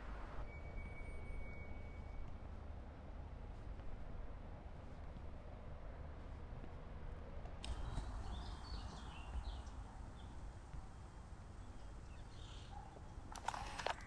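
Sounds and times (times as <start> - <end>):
sharp clicks: 7.6 - 9.8, 13.3 - 14.0.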